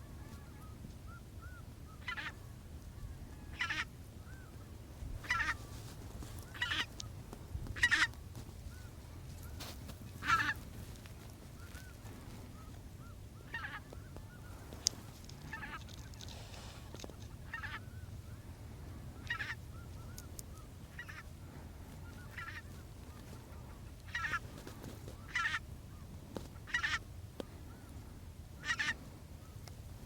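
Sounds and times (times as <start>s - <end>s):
geese honking: 1.4s - 2.4s, 3.0s - 4.6s, 5.2s - 7.0s, 7.6s - 10.6s, 11.6s - 16.3s, 17.2s - 18.1s, 19.2s - 20.3s, 20.9s - 21.3s, 22.0s - 25.6s, 26.6s - 27.0s, 28.6s - 29.0s.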